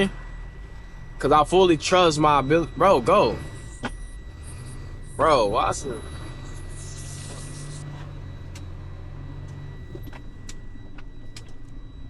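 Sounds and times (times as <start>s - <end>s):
truck diesel engine and road noise: 0.0s - 12.0s.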